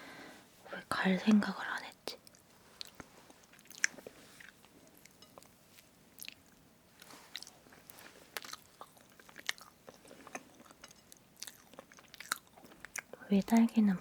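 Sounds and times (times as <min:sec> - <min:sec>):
soft moist chewing: 0:01.9 - 0:14.0.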